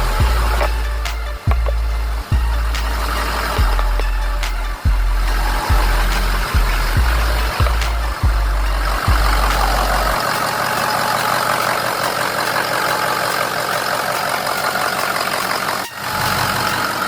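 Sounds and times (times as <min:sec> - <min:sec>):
deep thumps: 0:00.0 - 0:10.2
diesel engine idling: 0:00.0 - 0:17.0.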